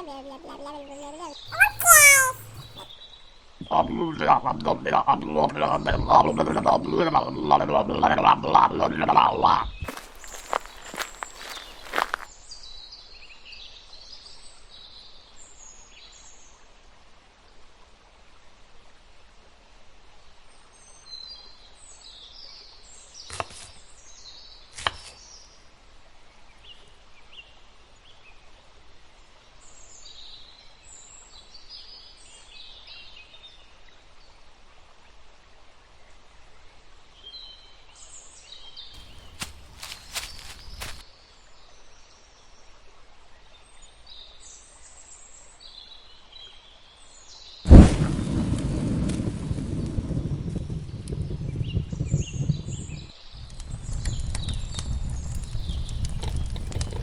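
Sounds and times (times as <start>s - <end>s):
small birds chirping: 0.0s - 2.9s, 9.9s - 12.3s, 39.0s - 41.0s, 55.2s - 57.0s
outdoor background hiss: 39.0s - 41.3s.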